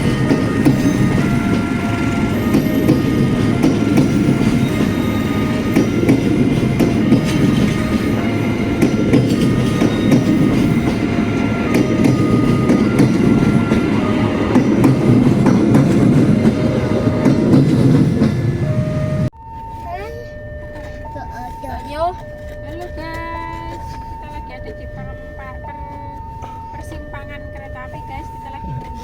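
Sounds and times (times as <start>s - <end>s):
rail joint clicks: 0.0s - 19.3s
train wheels rumbling on rails: 0.0s - 19.4s.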